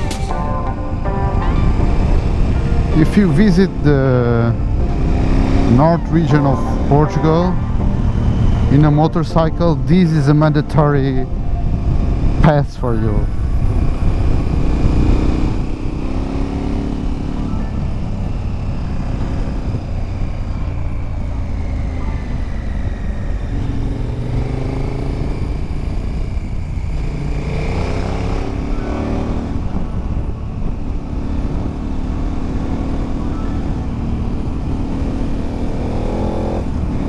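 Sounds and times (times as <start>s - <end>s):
wind and road noise: 2.0s - 6.9s, 7.7s - 37.0s
motorcycle engine revving: 3.8s - 6.4s, 22.6s - 37.0s.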